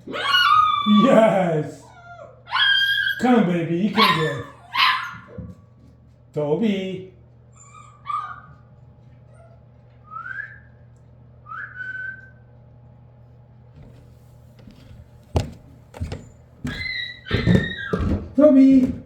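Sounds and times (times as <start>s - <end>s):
rising whistles: 10.1s - 10.8s, 11.4s - 12.5s
sharp thumps: 14.6s - 19.0s.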